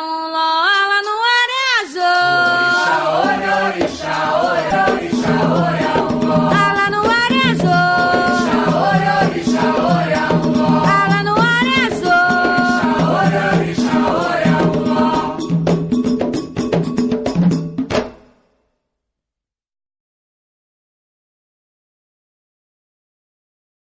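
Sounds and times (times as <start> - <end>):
hand percussion: 0.9 - 18.4
voices chanting: 2.2 - 15.5
sharp percussion strikes: 2.2 - 18.6.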